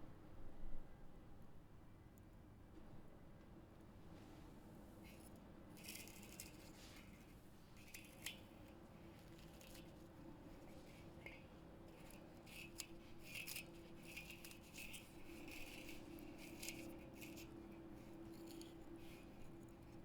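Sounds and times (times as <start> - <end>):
low steady hum: 4.2 - 20.0.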